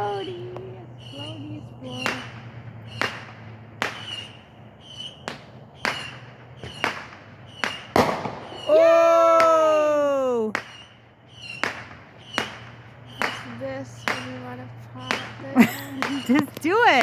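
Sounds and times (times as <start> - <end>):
fireworks and firecrackers banging: 0.0 - 9.9, 10.5 - 17.0
person exclaiming ohhh: 8.7 - 10.5.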